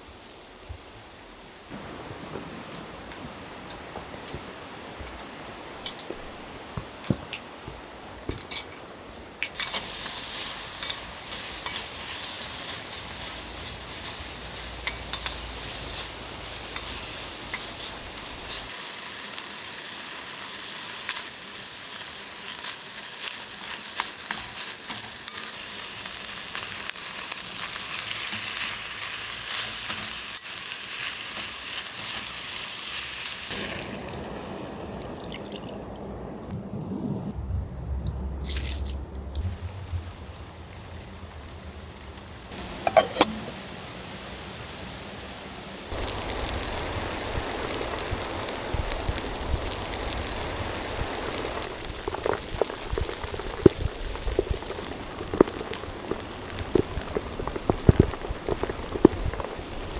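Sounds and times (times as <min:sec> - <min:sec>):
food sizzling in a pan: 0:09.5 - 0:36.5, 0:39.5 - 0:59.9.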